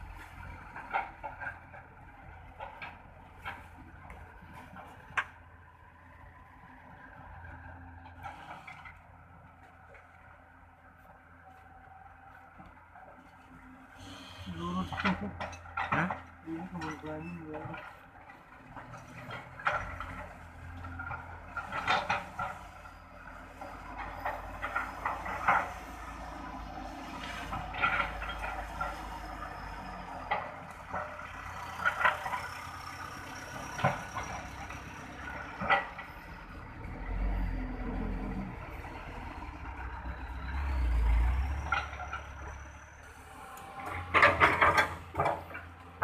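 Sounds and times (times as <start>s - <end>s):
metallic clanks and rattles: 14.6s - 36.7s, 43.8s - 46.0s
heavy truck engine revving: 23.3s - 46.0s.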